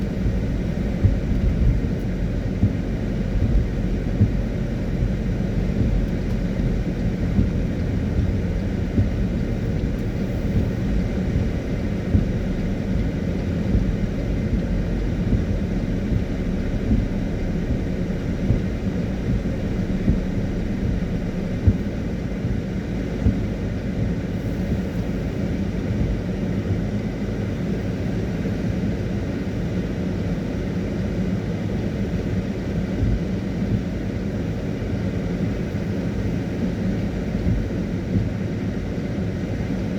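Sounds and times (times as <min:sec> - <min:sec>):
wet tyres hissing: 0:00.0 - 0:23.6
car engine and road rumble: 0:00.0 - 0:39.9.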